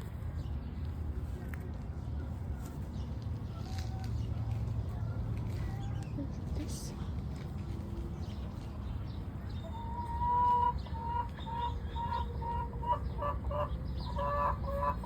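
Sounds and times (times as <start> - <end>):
chicken clucking: 9.7 - 15.0.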